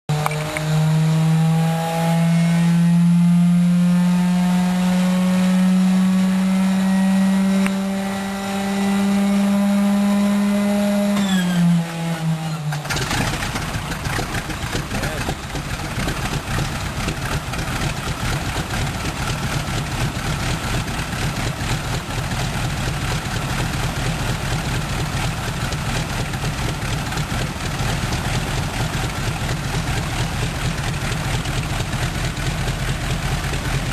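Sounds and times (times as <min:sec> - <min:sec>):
engine starter whining: 0:11.1 - 0:16.1
radial engine running unevenly: 0:13.4 - 0:20.2.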